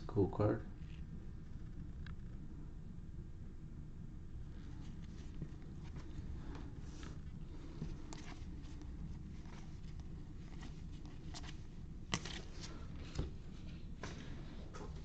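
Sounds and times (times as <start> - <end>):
low room hum: 0.0 - 15.0
trading cards clicking and rustling: 5.0 - 13.4.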